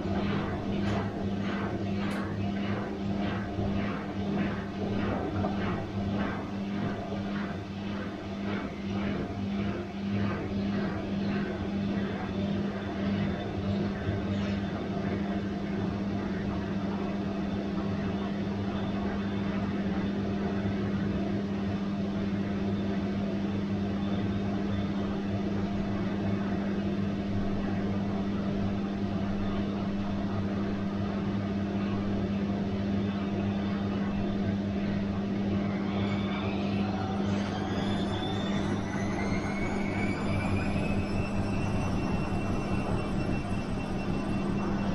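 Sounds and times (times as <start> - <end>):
washing machine humming: 0.0 - 44.9
thin rising whine: 33.1 - 44.9.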